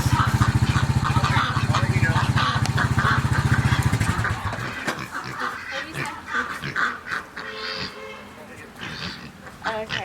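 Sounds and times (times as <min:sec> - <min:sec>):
low pulsing engine rumble: 0:00.0 - 0:04.8
farm birds honking: 0:00.0 - 0:10.0.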